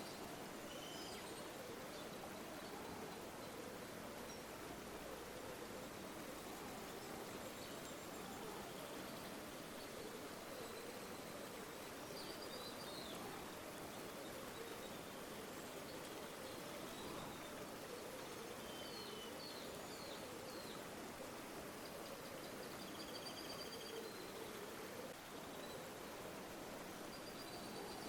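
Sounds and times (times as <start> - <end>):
faint bird chirps: 0.0 - 20.9, 21.7 - 26.1, 27.0 - 28.0
river water flowing: 23.5 - 28.0.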